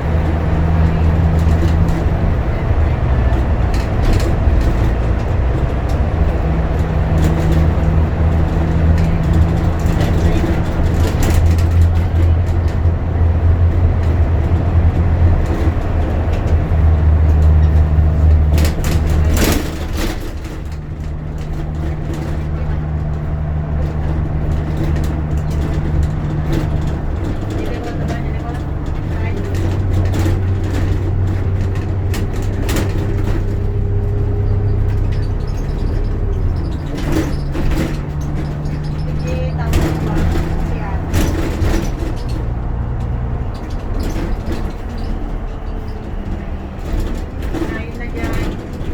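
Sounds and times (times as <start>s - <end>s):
bus diesel engine drone: 0.0s - 48.9s
rattles: 0.0s - 48.9s.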